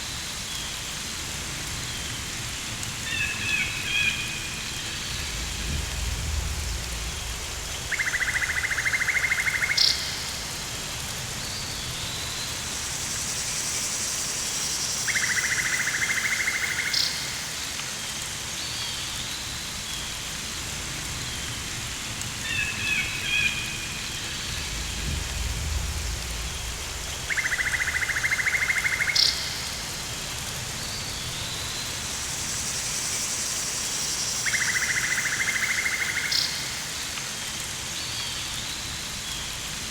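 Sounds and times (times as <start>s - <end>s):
steady hiss of rain: 0.0s - 39.9s
low rumble: 4.5s - 8.6s, 23.9s - 27.9s.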